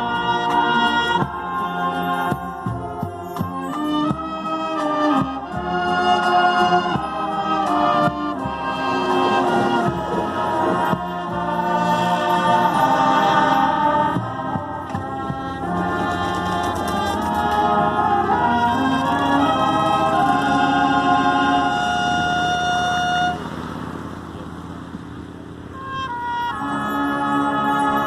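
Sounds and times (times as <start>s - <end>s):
marching band playing chords: 0.0s - 28.0s
drum strokes: 2.2s - 21.4s.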